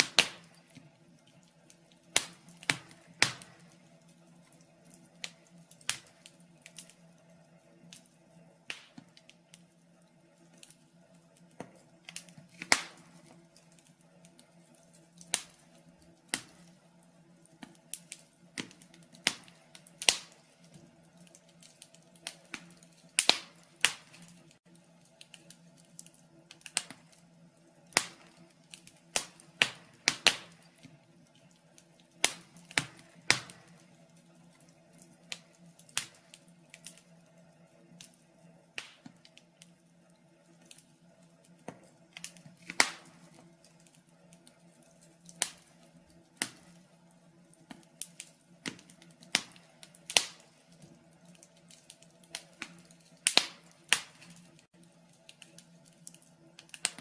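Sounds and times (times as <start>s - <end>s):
sharp pops of fire: 0.0s - 4.0s, 4.8s - 7.0s, 8.7s - 9.7s, 11.4s - 13.7s, 14.3s - 16.8s, 17.5s - 24.6s, 25.2s - 27.2s, 27.9s - 33.9s, 34.9s - 37.0s, 38.8s - 39.7s, 41.7s - 44.6s, 45.3s - 45.8s, 46.4s - 46.8s, 47.6s - 54.7s, 55.3s - 57.0s
wood fire crackling: 0.0s - 57.0s.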